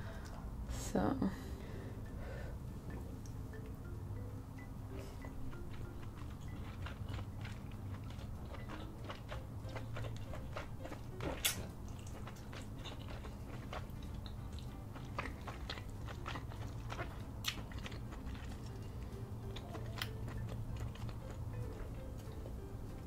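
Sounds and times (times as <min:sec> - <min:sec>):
wet chewing and smacking: 0:05.2 - 0:23.0.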